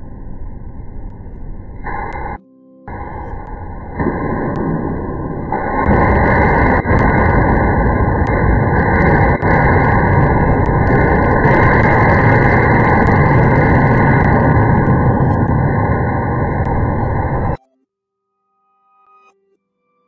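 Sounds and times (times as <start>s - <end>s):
electric fan rushing air: 0.0s - 17.6s.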